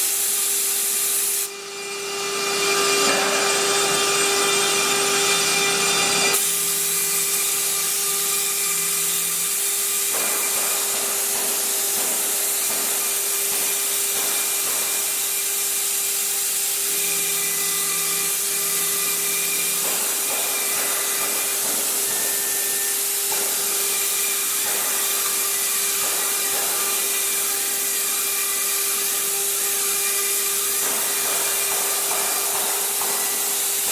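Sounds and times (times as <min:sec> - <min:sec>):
router spindle whine: 0:00.0 - 0:10.1
bit cutting wood: 0:00.0 - 0:33.9.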